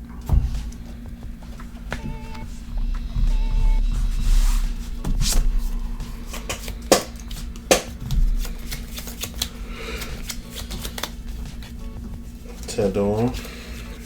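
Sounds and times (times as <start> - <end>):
cards being shuffled: 4.6 - 14.0
sharp taps: 5.0 - 12.2.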